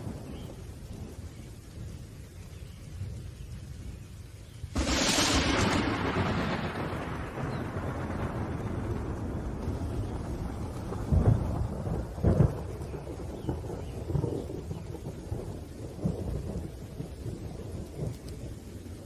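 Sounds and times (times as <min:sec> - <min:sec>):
rumbling thunder: 0:00.0 - 0:02.2, 0:04.7 - 0:19.0
steady rain: 0:00.0 - 0:19.0
thunder cracks: 0:04.7 - 0:17.3.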